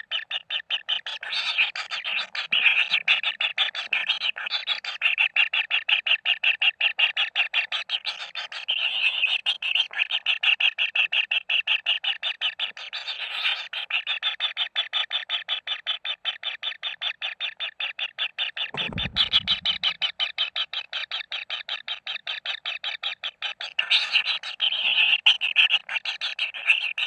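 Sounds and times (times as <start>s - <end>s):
fast repeated calling: 18.7s - 20.4s
short low rumble: 18.8s - 20.1s.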